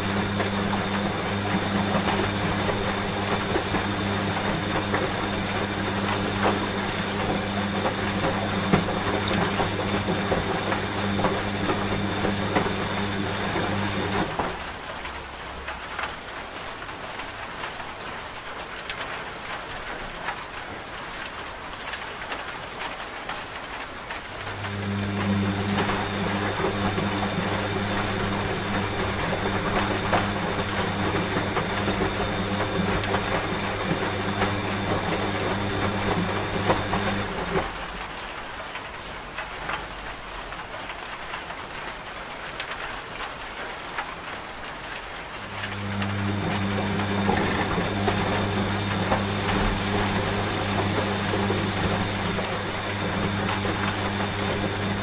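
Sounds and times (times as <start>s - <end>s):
washing machine humming: 0.0s - 15.4s, 24.2s - 38.9s, 44.8s - 55.0s
steady rain: 0.0s - 55.0s.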